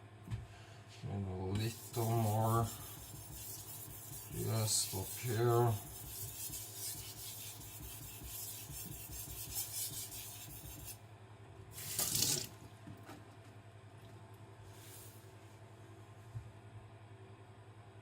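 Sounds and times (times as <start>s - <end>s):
knife blade rasping on whetstone: 1.6s - 10.8s.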